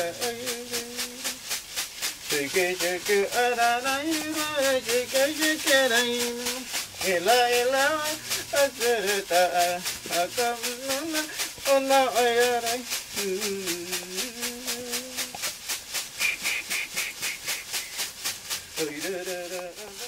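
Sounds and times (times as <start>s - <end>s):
man chanting: 0.0s - 1.4s, 2.2s - 15.4s, 18.8s - 20.0s
rattle shaking: 0.0s - 20.0s.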